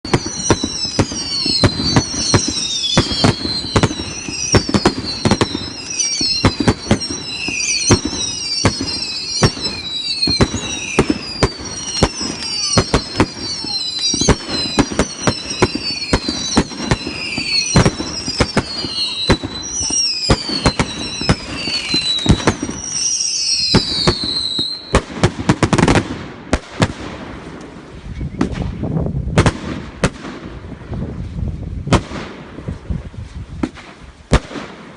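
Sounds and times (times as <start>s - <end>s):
firework whistles screaming: 0.0s - 25.1s
firework bangs and crackle: 0.0s - 34.9s.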